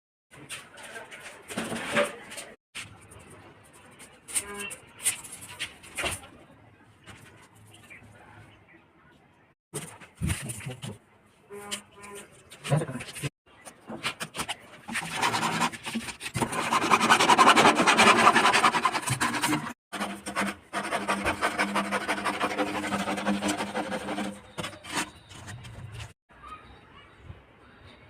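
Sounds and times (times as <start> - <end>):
tool scraping plastic pipe: 0.4 - 2.9, 9.8 - 26.2.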